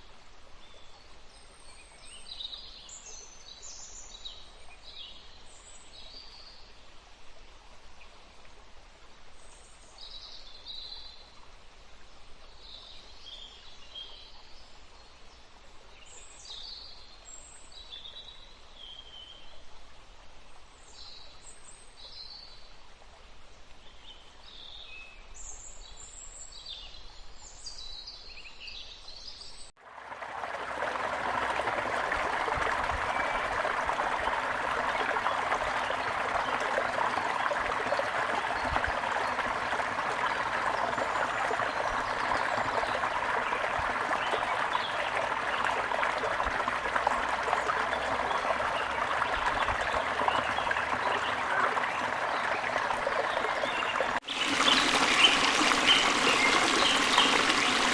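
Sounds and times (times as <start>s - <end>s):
waterfall splashing: 29.8s - 57.9s
small birds chirping: 30.1s - 57.9s.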